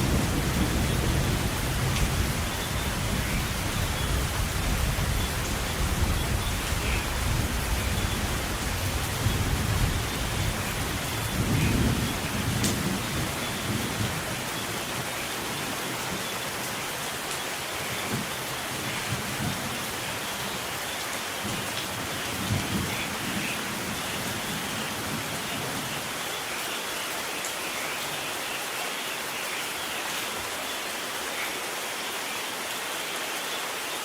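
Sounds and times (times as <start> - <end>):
rolling thunder: 0.0 - 14.4
heavy rain: 0.0 - 34.0.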